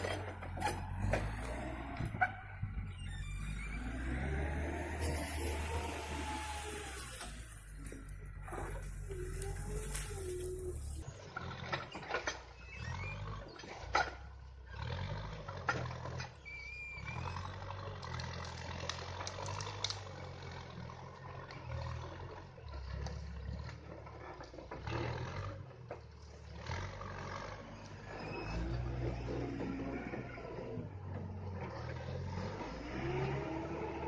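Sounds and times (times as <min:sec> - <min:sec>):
heavy diesel engine drone: 0:00.0 - 0:11.4
sharp cracks and knocks: 0:18.0 - 0:20.2.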